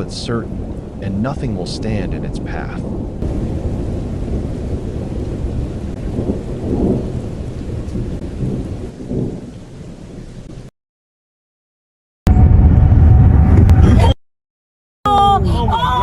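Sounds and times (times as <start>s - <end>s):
steady rain: 0.0s - 10.7s
thunder rumbling: 0.0s - 10.7s, 12.3s - 14.2s.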